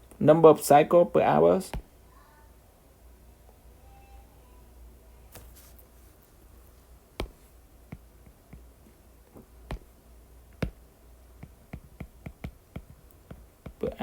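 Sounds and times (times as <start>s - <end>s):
low steady hum: 0.0s - 14.0s
pen tapping and ticking on paper: 7.2s - 8.7s, 9.4s - 14.0s.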